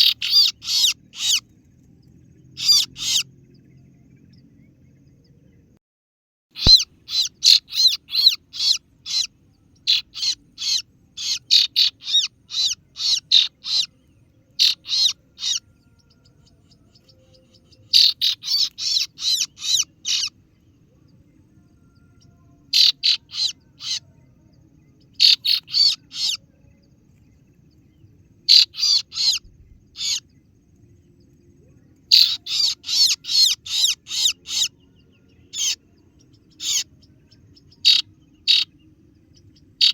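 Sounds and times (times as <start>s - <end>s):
bird lure call chirps: 0.0s - 1.4s, 2.6s - 3.2s, 6.6s - 14.0s, 14.6s - 20.3s, 28.5s - 30.2s.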